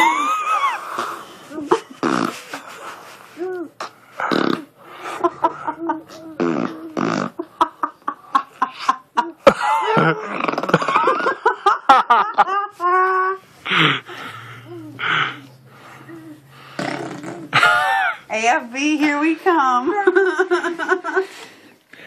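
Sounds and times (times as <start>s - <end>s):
laughter: 0.0s - 1.9s, 5.2s - 6.2s, 7.4s - 13.2s, 20.0s - 21.3s
baby blowing raspberries: 2.0s - 5.2s, 6.1s - 7.4s, 13.7s - 17.8s.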